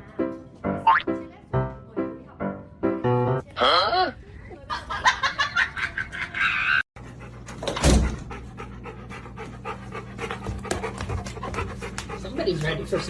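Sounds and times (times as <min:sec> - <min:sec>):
dog panting: 0:07.0 - 0:13.0.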